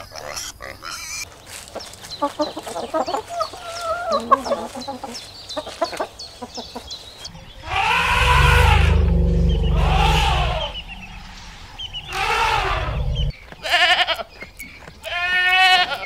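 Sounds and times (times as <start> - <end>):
chickens clucking: 0.0 - 15.0
drawn-out low animal call: 7.3 - 14.2.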